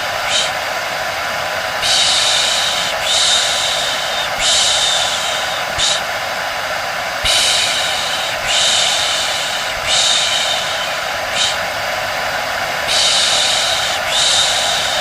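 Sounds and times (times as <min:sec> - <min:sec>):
hair dryer whirring: 0:00.0 - 0:15.0
person shushing: 0:07.3 - 0:11.6, 0:12.9 - 0:15.0.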